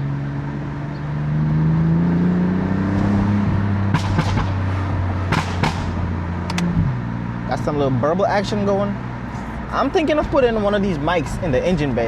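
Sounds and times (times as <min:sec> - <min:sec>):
car engine revving: 0:00.0 - 0:08.0
exhaust crackles and pops: 0:03.9 - 0:04.7.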